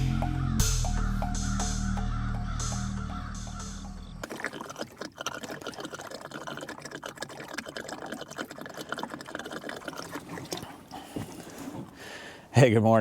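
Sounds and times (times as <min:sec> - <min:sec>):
music: 0:00.0 - 0:04.2
liquid being poured: 0:04.2 - 0:12.2.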